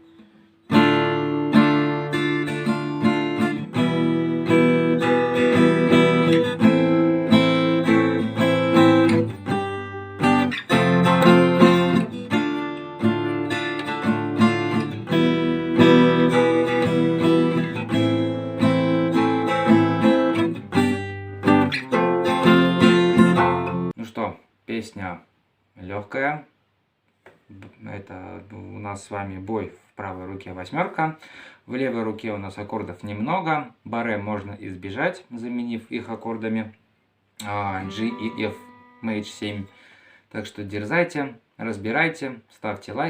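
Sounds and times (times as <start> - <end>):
acoustic guitar strumming chords: 0.0 - 23.9, 37.4 - 40.1.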